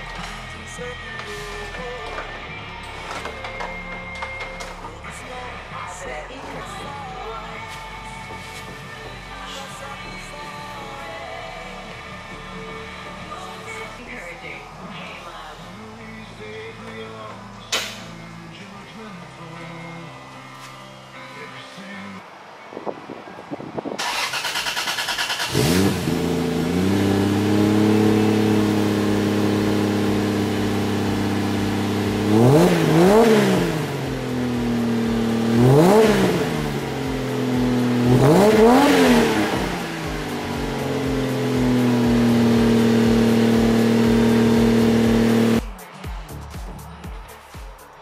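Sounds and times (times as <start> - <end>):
car engine idling: 24.0 - 45.6
car engine starting and revving: 24.0 - 45.6.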